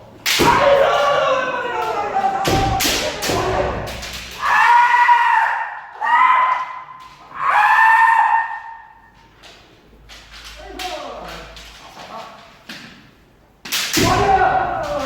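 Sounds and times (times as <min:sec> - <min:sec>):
high-pitched kiai shouts: 0:04.4 - 0:09.0.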